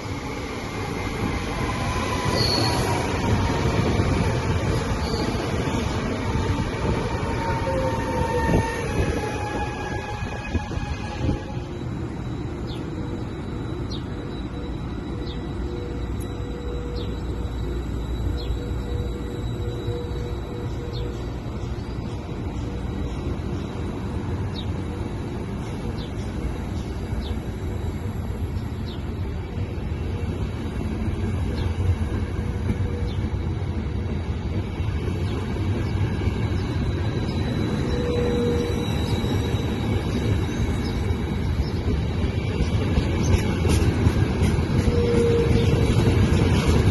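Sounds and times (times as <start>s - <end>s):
train rumbling: 0.0s - 46.9s.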